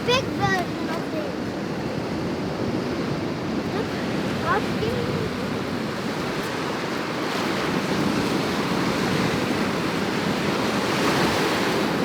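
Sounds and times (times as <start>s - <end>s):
ocean surf washing in: 0.0s - 12.0s.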